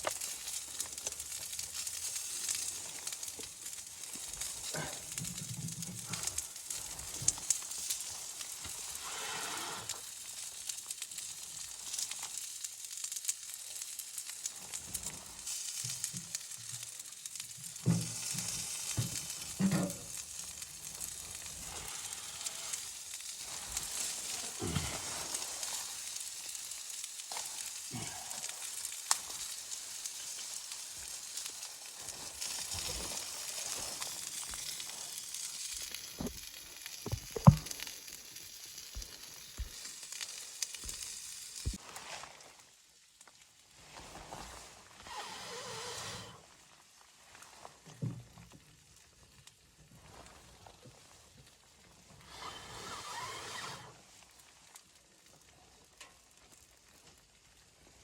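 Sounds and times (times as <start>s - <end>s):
food sizzling in a pan: 0.0s - 58.0s
utensil knocking and scraping: 37.0s - 37.7s.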